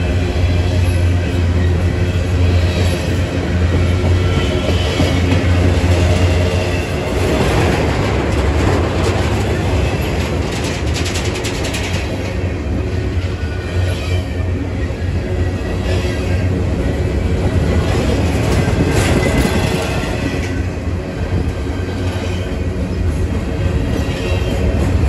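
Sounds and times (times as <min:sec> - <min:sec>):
freight train wheels rumbling: 0:00.0 - 0:25.0
wheels clicking over rail joints: 0:02.8 - 0:12.6.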